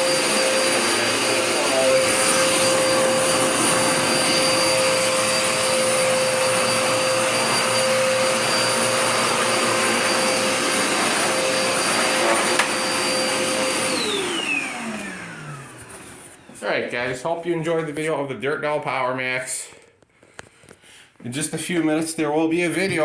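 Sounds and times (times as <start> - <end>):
vacuum cleaner whining: 0.0 - 18.1.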